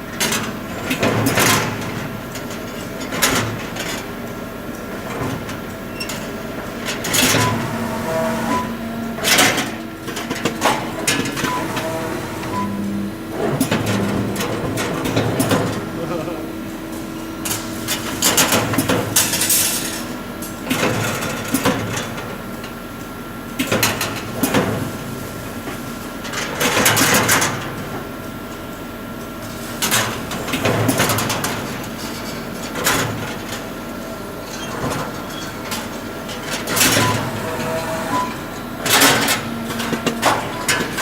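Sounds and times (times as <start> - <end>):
machine hum: 6.2 - 19.5.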